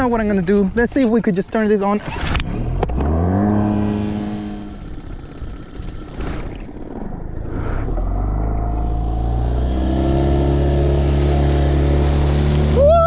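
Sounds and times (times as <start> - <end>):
outboard motor running: 0.2 - 13.0.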